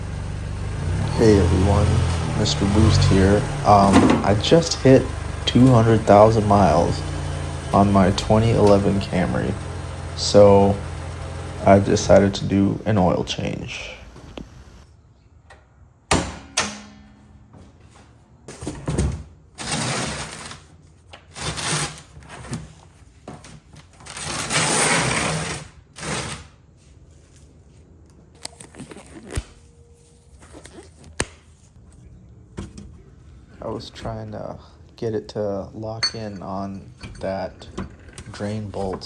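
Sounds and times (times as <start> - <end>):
rustling or scraping: 19.6 - 34.2.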